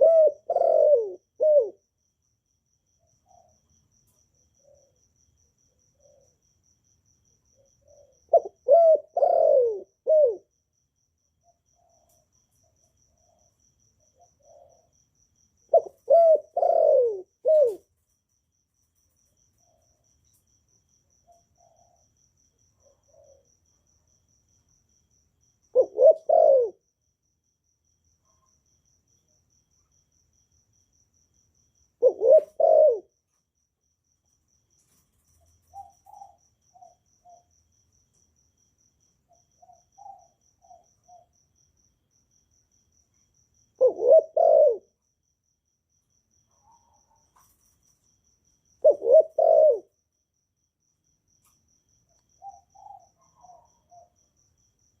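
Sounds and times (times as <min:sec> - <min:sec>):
dove cooing: 0:00.0 - 0:01.9, 0:04.6 - 0:05.0, 0:05.7 - 0:06.4, 0:07.6 - 0:10.5, 0:14.1 - 0:14.9, 0:15.7 - 0:17.9, 0:21.2 - 0:22.1, 0:22.8 - 0:23.6, 0:25.7 - 0:26.8, 0:32.0 - 0:33.2, 0:35.4 - 0:37.5, 0:39.6 - 0:41.3, 0:43.8 - 0:45.0, 0:48.8 - 0:50.0, 0:52.4 - 0:54.2.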